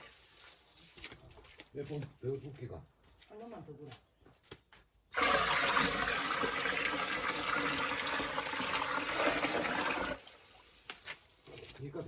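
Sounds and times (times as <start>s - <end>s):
water pouring into a pot: 5.1s - 11.0s.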